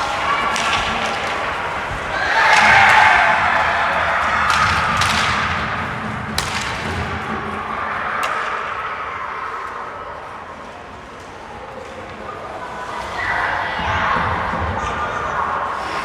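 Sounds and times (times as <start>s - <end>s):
hockey stick cracking on puck: 0.0s - 3.2s, 4.2s - 7.1s
crowd noise: 0.0s - 16.0s.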